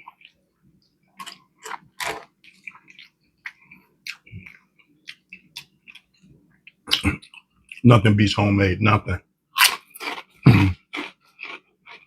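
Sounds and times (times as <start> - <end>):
crisp chewing: 0.0 - 7.8.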